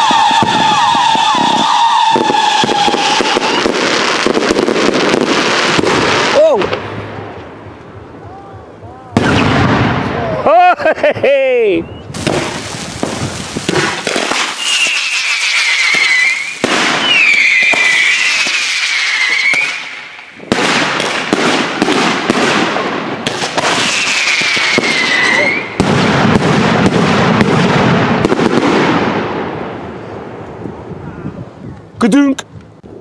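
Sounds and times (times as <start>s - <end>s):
falling firework whistles: 0.0s - 6.4s, 11.8s - 21.2s, 23.3s - 25.8s
fireworks crackling and banging: 0.0s - 8.0s, 12.1s - 30.5s
sharp cracks: 12.1s - 25.0s.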